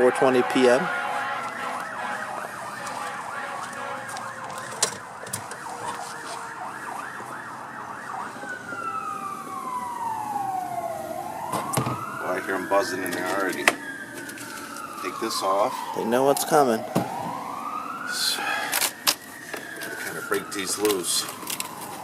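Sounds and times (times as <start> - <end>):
emergency siren yelp and wail: 0.0 - 22.0.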